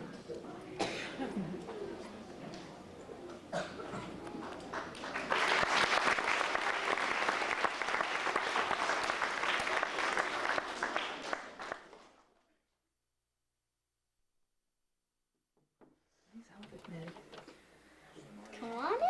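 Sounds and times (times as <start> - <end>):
small audience clapping: 4.2 - 12.4.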